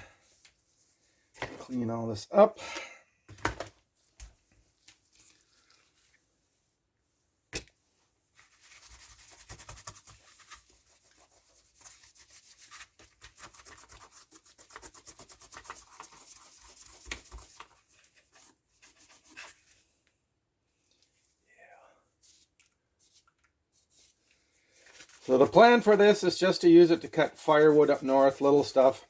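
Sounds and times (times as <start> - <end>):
cloth wiping chainsaw: 25.2 - 29.0.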